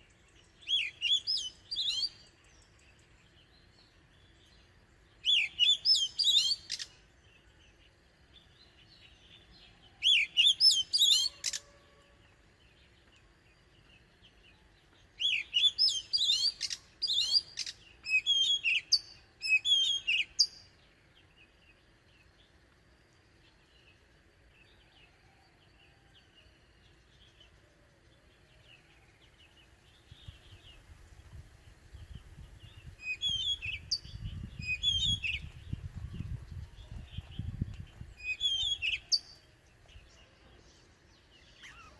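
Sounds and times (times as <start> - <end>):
bird singing whistled phrases: 0.6 - 2.2, 5.2 - 6.9, 10.0 - 11.8, 15.2 - 20.6, 33.0 - 35.5, 38.2 - 39.3.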